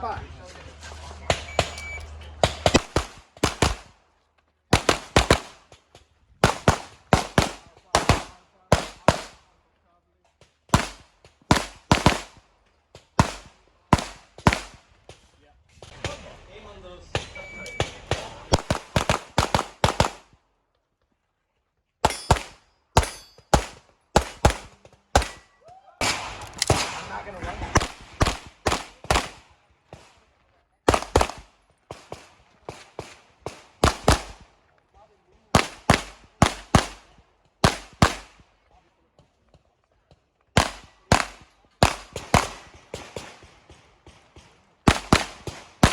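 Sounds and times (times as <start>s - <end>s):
rapid handgun shots: 1.3s - 4.0s, 4.7s - 5.7s, 6.4s - 9.4s, 10.7s - 12.4s, 13.2s - 14.9s, 17.8s - 20.4s, 22.0s - 25.4s, 26.0s - 30.2s, 30.9s - 34.5s, 35.5s - 38.4s, 40.5s - 45.9s.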